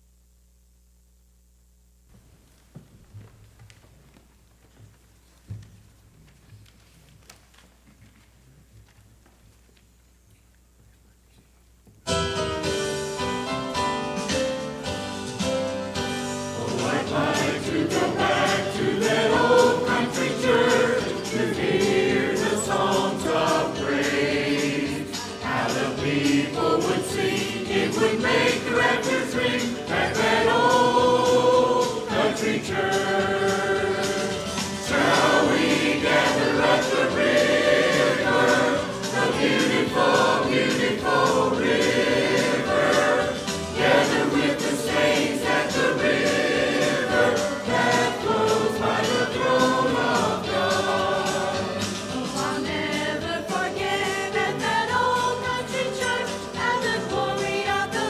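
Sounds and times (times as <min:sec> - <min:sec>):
instrumental accompaniment: 0:12.1 - 0:58.0
choir singing gospel: 0:12.6 - 0:58.0.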